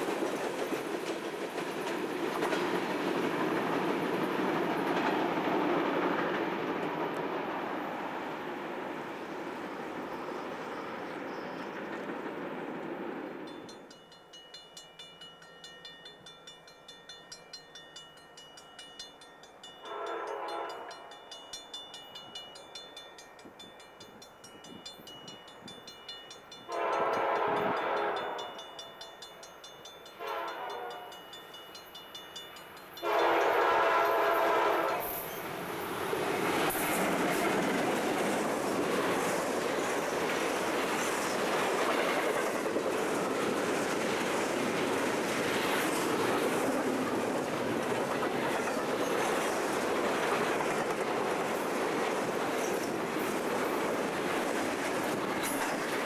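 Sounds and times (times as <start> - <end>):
freight train rumbling past: 0.0 - 56.0
crossing signal bell ringing: 13.5 - 34.2
locomotive air horn blasts: 19.8 - 21.1, 26.7 - 28.5, 30.2 - 31.2, 33.0 - 35.2.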